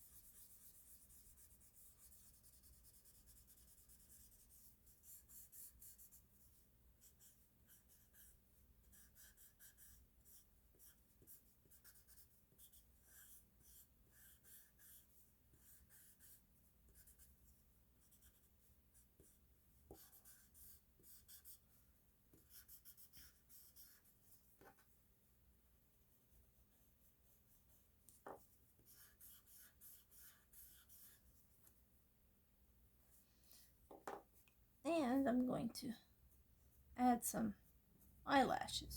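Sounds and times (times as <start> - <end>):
pencil scratching on paper: 0.0 - 25.0, 26.3 - 31.8.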